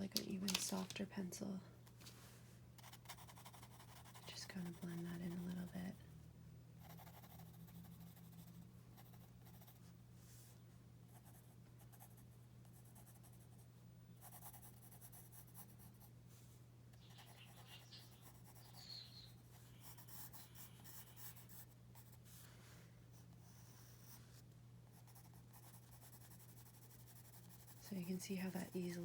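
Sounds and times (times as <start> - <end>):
pencil scratching on paper: 6.8 - 9.8, 19.8 - 22.2, 24.9 - 29.0.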